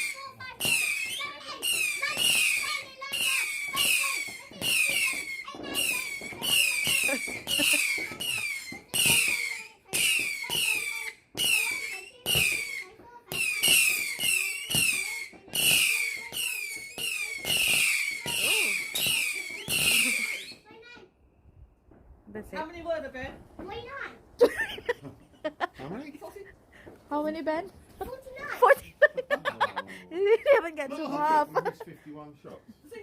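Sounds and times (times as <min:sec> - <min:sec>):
falling firework whistle: 0:00.0 - 0:20.7
firework cake shots: 0:00.0 - 0:20.8.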